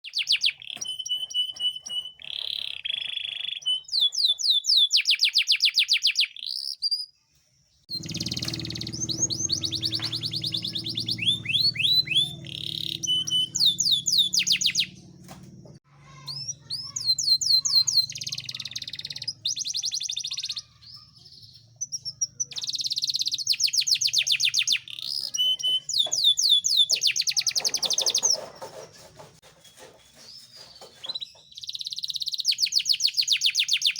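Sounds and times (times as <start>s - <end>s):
canary singing trills: 0.0s - 7.2s, 7.9s - 28.8s, 30.2s - 33.9s
low hum: 7.9s - 15.8s.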